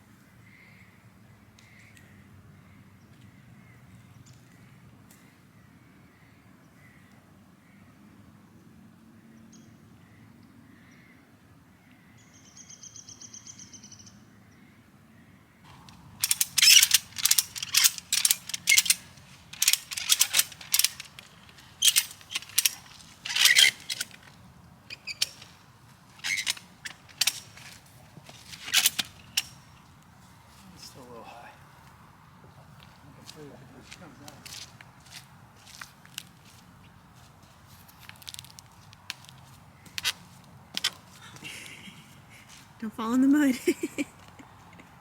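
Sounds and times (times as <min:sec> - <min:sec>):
ratchet tensioner strokes: 0:15.9 - 0:24.2.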